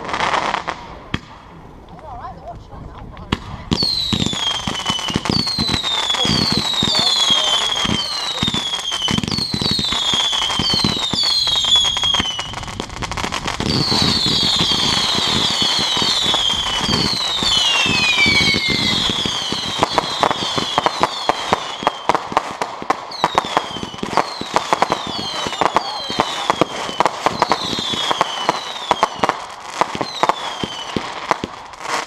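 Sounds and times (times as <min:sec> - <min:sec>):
fireworks crackling pops: 0:00.0 - 0:32.0
fireworks whistling: 0:03.4 - 0:32.0.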